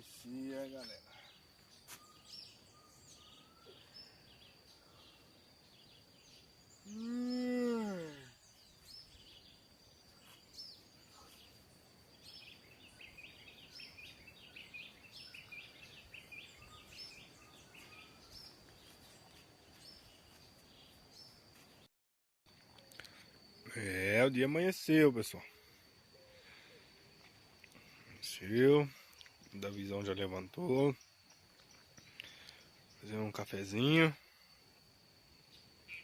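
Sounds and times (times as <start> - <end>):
birds chirping: 0.2 - 21.9, 27.6 - 34.1, 35.4 - 36.0
high-pitched insect drone: 2.2 - 17.3.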